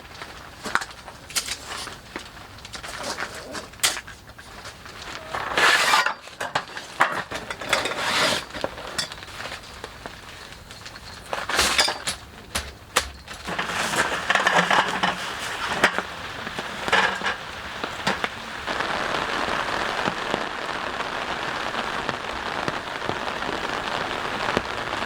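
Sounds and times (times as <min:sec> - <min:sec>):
rustling: 0:00.0 - 0:18.7
hard objects clinking and knocking: 0:05.1 - 0:09.6, 0:10.4 - 0:18.3.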